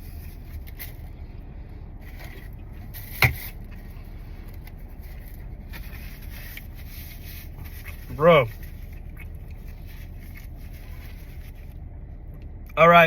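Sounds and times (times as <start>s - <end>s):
low vehicle rumble: 0.0s - 13.0s
faint rustling: 2.0s - 11.8s.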